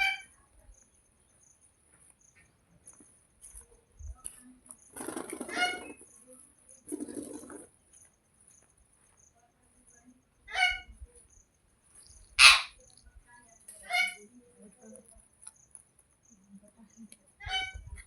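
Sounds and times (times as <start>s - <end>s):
parrot squawking: 12.4s - 12.7s.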